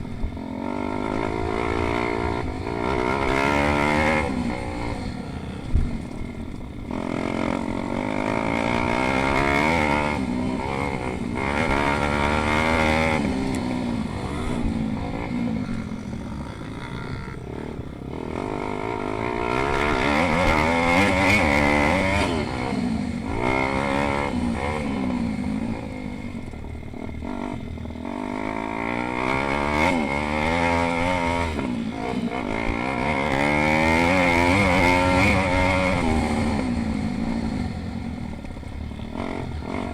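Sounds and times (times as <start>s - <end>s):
pit bike engines revving: 0.0s - 39.9s.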